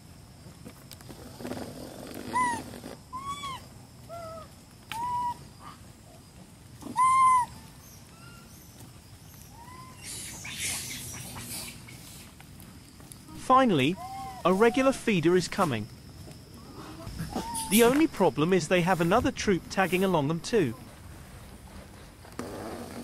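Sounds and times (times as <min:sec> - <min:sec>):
hissing rustle: 0:00.4 - 0:23.0
whistle-like animal calls: 0:02.3 - 0:03.6, 0:06.9 - 0:07.6, 0:13.8 - 0:15.0, 0:16.9 - 0:18.3.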